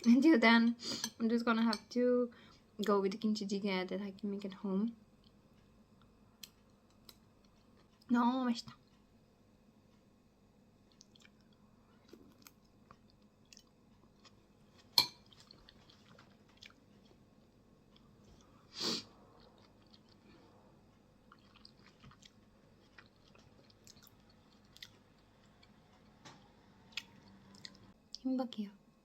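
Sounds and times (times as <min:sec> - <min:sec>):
person chewing: 0:10.9 - 0:17.2, 0:19.2 - 0:26.2, 0:26.9 - 0:28.0.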